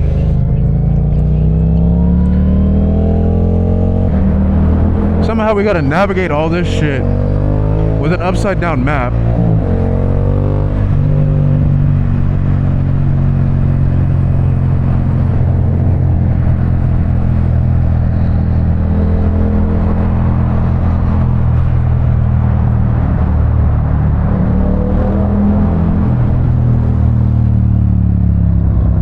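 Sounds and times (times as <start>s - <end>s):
motorcycle engine cruising: 0.0s - 29.0s
road noise: 0.0s - 29.0s.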